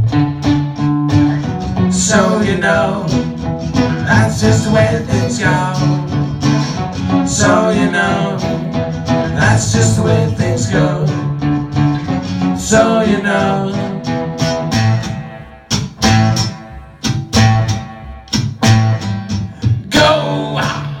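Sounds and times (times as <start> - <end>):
acoustic guitar strumming: 0.0 - 21.0
person singing: 1.7 - 11.7, 12.4 - 14.4, 19.6 - 21.0.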